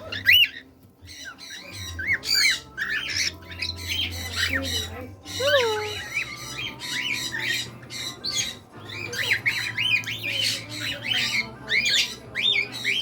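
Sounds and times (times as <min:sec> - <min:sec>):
parrots squawking: 0:00.0 - 0:13.0.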